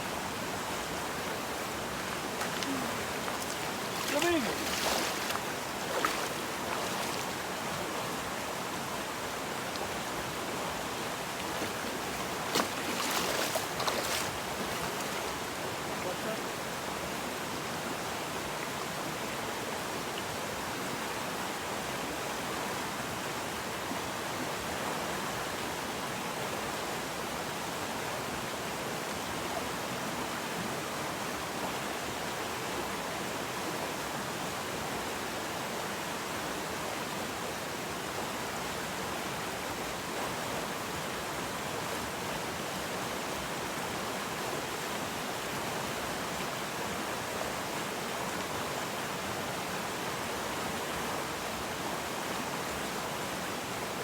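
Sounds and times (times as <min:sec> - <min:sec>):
river water rushing: 0:00.0 - 0:19.6.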